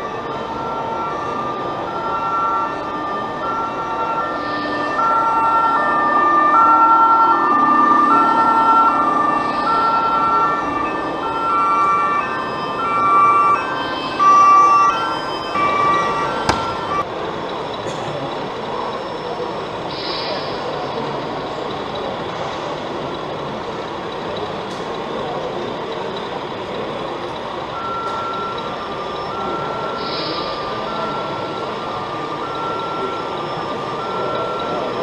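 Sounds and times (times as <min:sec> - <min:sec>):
electronic siren: 0:00.0 - 0:17.0, 0:27.8 - 0:35.0
reversing beeper: 0:00.0 - 0:17.0, 0:26.8 - 0:35.0
background hubbub: 0:00.0 - 0:35.0.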